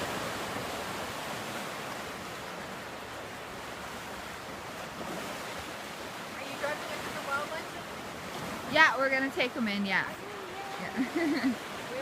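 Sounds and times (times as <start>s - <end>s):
waves washing on shore: 0.0s - 12.0s
wind: 0.0s - 12.0s.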